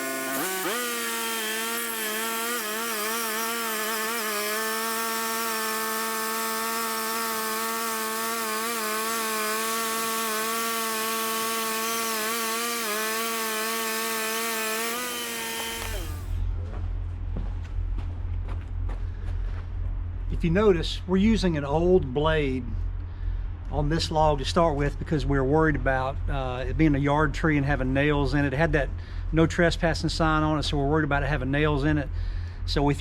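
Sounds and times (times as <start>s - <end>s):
bandsaw cutting log: 0.0s - 16.4s
low machine hum: 0.0s - 33.0s.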